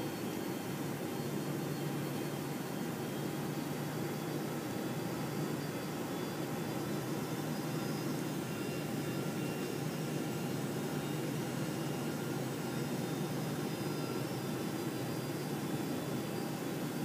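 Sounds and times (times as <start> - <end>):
airplane cabin engine rush: 0.0 - 17.0
faint steady whines: 0.0 - 17.0.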